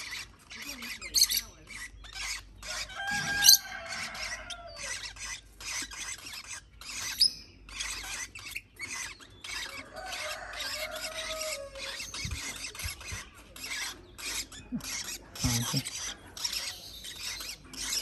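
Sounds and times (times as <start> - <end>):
parrot chick squeals: 0.0 - 18.0
parrot chicks begging calls: 0.0 - 18.0.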